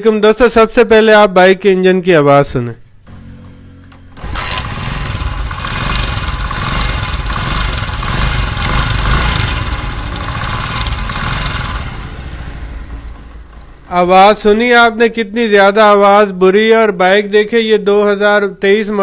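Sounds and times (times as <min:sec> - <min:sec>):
motorcycle engine clattering: 0:04.0 - 0:14.7.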